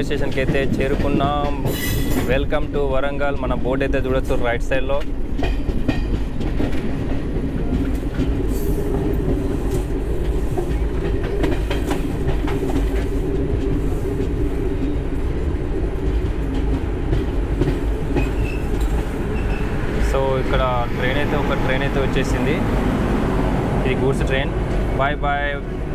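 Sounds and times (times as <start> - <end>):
train rumbling on rails: 0.0 - 25.9
wheels clicking over rail joints: 0.1 - 15.1.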